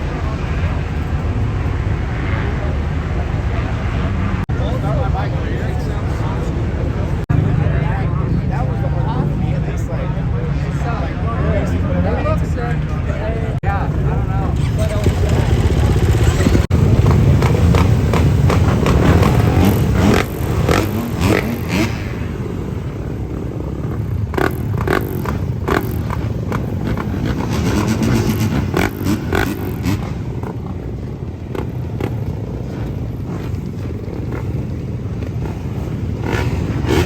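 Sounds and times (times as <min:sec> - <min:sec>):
motor vehicle rumbling: 0:00.0 - 0:37.0.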